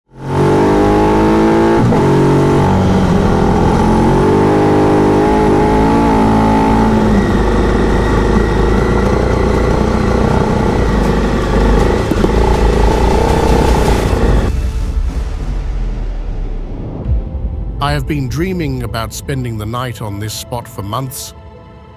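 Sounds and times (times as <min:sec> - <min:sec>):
motorcycle engine accelerating: 0:00.1 - 0:14.7.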